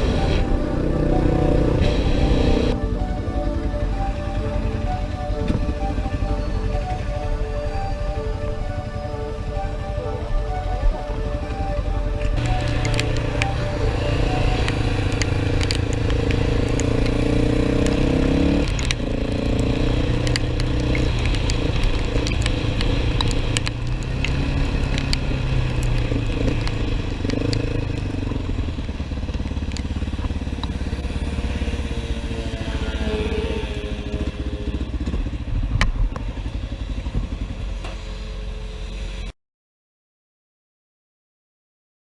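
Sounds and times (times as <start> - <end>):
motorcycle engine accelerating: 0.0 - 39.3.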